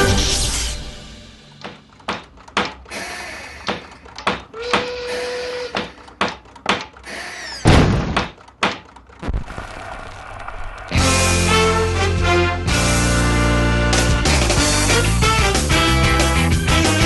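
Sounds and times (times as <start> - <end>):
sharp knocks and clicks: 1.6 - 2.9, 3.6 - 5.0, 5.7 - 9.2
heavy thump: 7.7 - 8.4.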